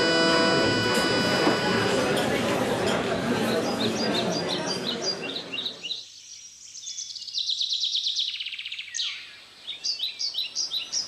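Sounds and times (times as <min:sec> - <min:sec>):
songbirds chirping: 0:03.2 - 0:11.0.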